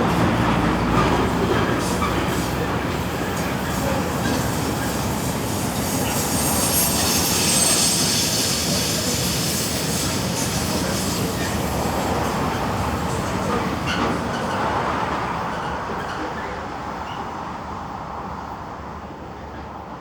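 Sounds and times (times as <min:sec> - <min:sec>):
train wheels on rails: 0:00.0 - 0:20.0
high wheel squeal: 0:00.1 - 0:12.8.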